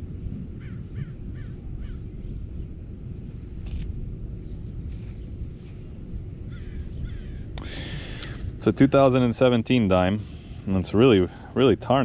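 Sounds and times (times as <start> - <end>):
steady low rumble: 0.0 - 12.0
bird calls: 6.5 - 8.4.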